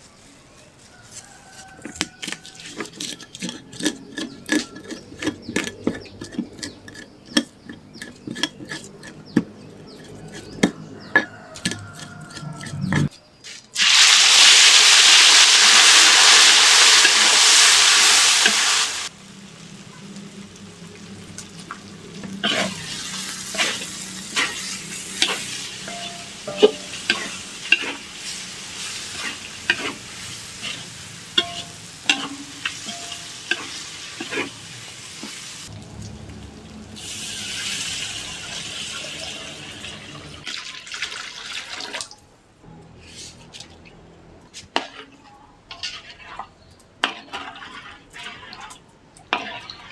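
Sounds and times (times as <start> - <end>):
utensil scraping a pan: 0.8 - 13.1, 22.4 - 35.5, 44.5 - 49.9
food sizzling in a hot pan: 13.8 - 35.8, 37.0 - 39.8.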